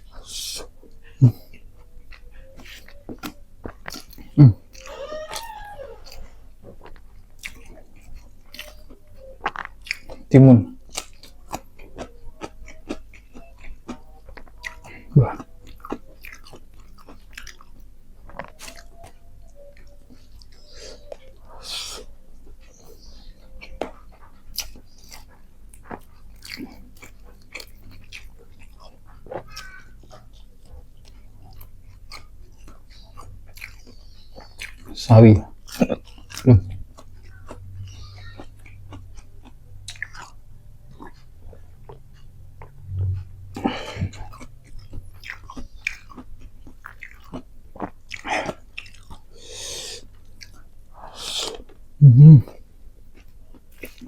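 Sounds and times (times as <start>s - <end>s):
person chewing food: 0.0s - 54.0s
breath-like rush: 49.3s - 50.0s.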